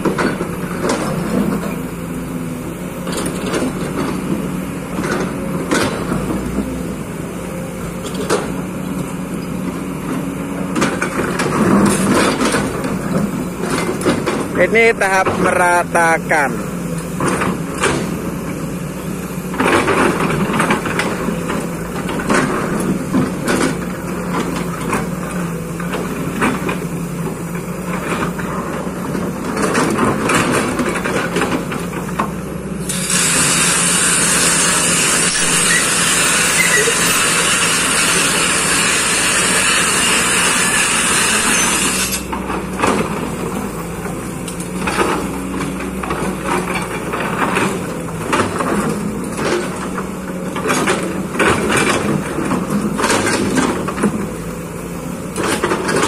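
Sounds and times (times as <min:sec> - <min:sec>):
excavator engine running: 0:00.0 - 0:56.0
loud even hiss: 0:32.8 - 0:42.3.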